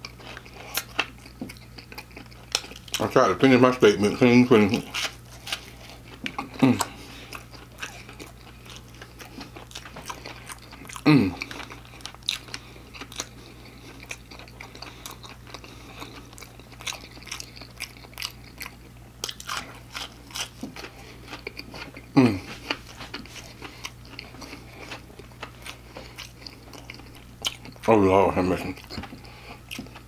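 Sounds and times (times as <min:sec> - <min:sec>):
crunchy chewing: 0:00.0 - 0:03.2, 0:04.1 - 0:30.0.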